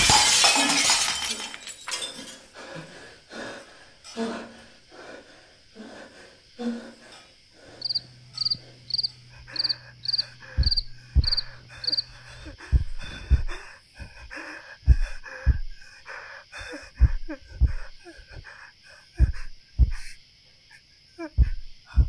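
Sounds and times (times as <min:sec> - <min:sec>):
cricket chirping: 0:00.0 - 0:22.0
deep heartbeat thumps: 0:10.0 - 0:15.9, 0:16.8 - 0:18.5, 0:19.1 - 0:20.2, 0:21.4 - 0:22.0.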